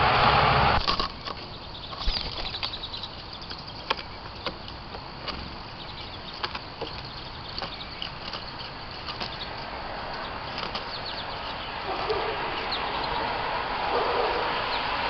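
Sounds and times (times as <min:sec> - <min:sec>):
passing vehicle: 0:00.0 - 0:00.8, 0:09.2 - 0:15.0
small birds chirping: 0:00.0 - 0:15.0.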